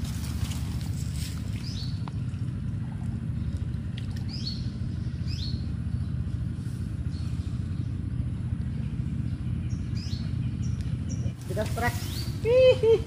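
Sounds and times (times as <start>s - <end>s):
low rumble: 0.0s - 13.0s
bird chirping: 1.5s - 2.1s, 4.2s - 13.0s.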